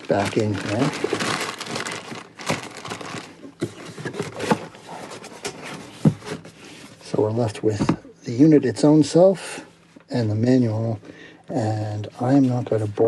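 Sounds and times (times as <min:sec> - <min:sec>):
packaging rustling and crinkling: 0:00.0 - 0:06.6.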